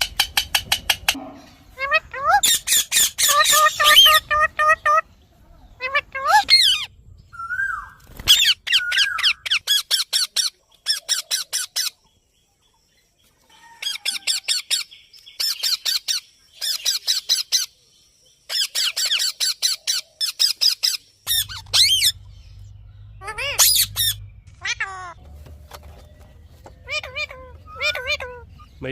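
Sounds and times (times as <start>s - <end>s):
parakeet squawking: 0.1s - 5.1s, 5.8s - 12.0s, 18.5s - 25.2s, 26.7s - 28.9s.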